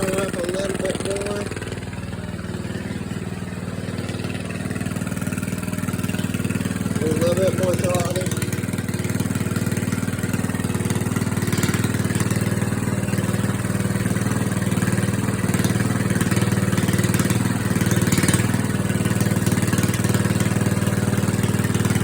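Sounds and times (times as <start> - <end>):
small engine running: 0.0 - 22.0.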